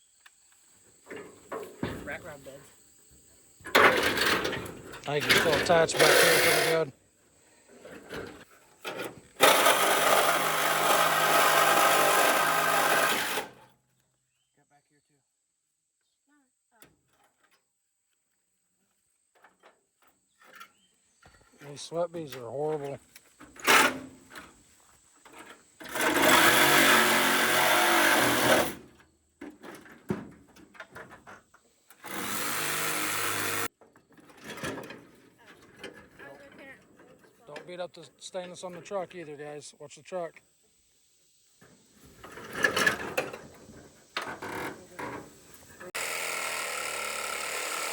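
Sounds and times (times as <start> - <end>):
power saw cutting: 5.1 - 6.9, 9.2 - 13.6, 25.8 - 28.8, 32.0 - 33.7, 44.3 - 47.9.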